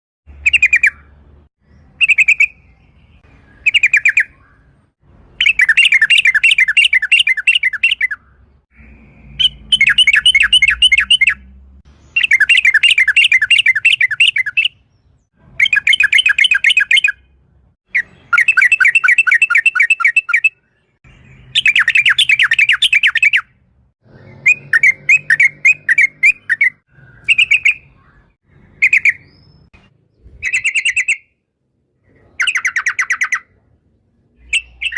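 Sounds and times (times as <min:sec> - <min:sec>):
bulbul calling in rattled phrases: 0:05.4 - 0:11.5, 0:12.1 - 0:17.3, 0:21.5 - 0:23.6, 0:32.0 - 0:33.8, 0:34.4 - 0:34.9.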